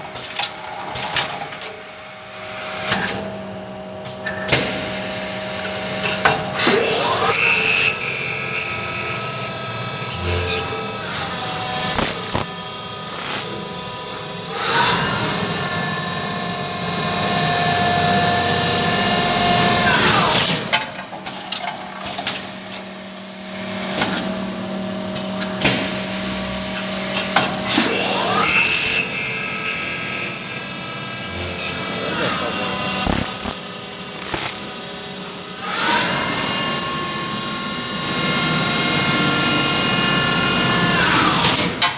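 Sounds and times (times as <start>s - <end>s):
motor whine spinning up and down: 26.5s - 41.8s.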